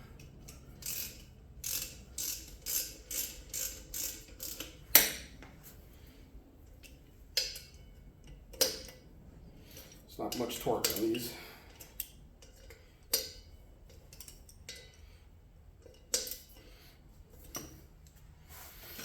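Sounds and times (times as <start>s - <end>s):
ratchet wrench clicking: 0.2s - 5.3s.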